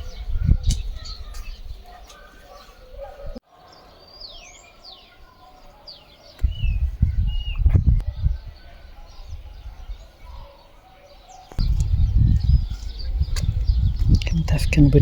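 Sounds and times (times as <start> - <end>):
small birds chirping: 0.0 - 15.0
low rumble on microphone: 6.4 - 8.6, 11.6 - 15.0.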